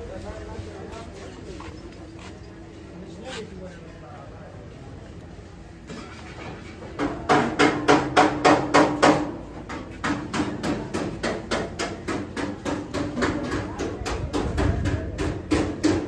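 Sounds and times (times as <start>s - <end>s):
hammer beating sheet metal: 7.0s - 16.0s.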